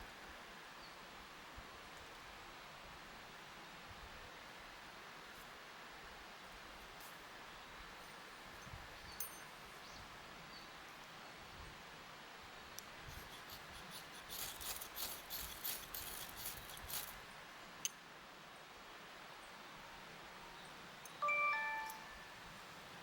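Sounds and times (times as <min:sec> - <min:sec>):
low hiss: 0:00.0 - 0:23.0
faint scratching and crackling clicks: 0:12.8 - 0:17.2.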